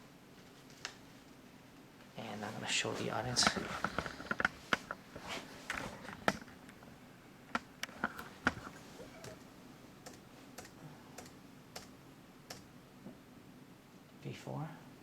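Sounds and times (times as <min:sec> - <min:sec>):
computer keyboard clicking: 0:10.0 - 0:11.9, 0:12.5 - 0:12.7
mouse clicking: 0:10.0 - 0:11.9, 0:12.5 - 0:12.7.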